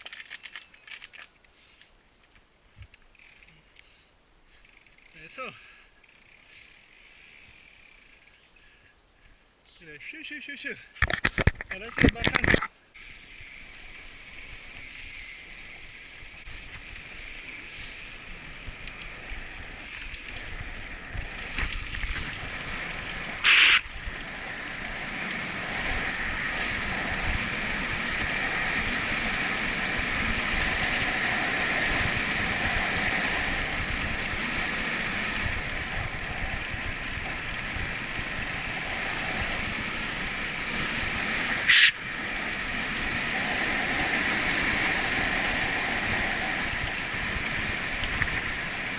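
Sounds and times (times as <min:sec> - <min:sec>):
bicycle tyres rolling on road: 0:02.0 - 0:08.8, 0:12.9 - 0:48.9
wind rushing over microphone: 0:17.8 - 0:48.9.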